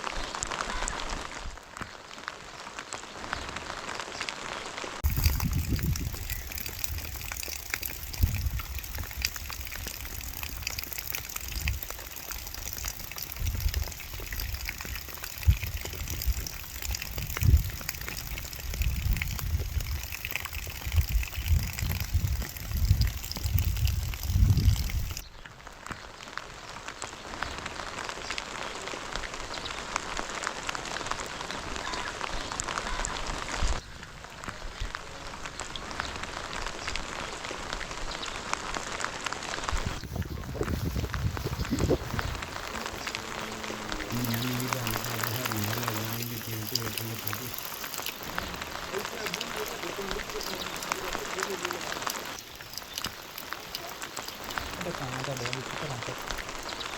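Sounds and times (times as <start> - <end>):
heavy rain hissing: 3.9 - 25.2, 38.5 - 56.9.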